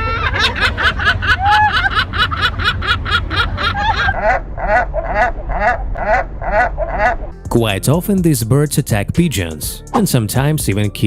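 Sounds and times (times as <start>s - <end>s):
gull laughing calls: 0.0s - 7.4s
steady low rumble: 0.0s - 8.2s.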